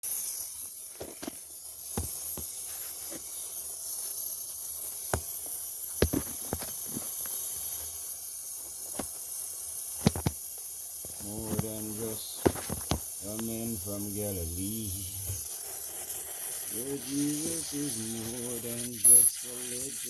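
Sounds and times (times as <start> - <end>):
welding arc hissing and crackling: 11.0 - 20.0.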